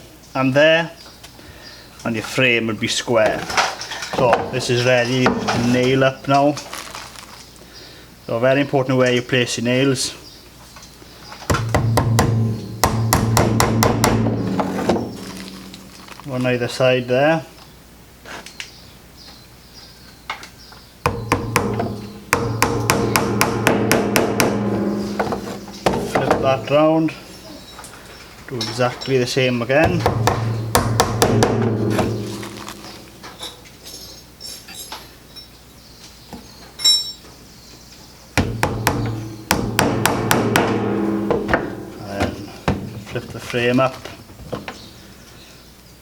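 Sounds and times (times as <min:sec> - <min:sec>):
hammer striking nails into wood: 0:11.5 - 0:15.3, 0:21.1 - 0:26.5, 0:29.9 - 0:32.9, 0:38.4 - 0:42.8
metallic clink: 0:36.8 - 0:37.2.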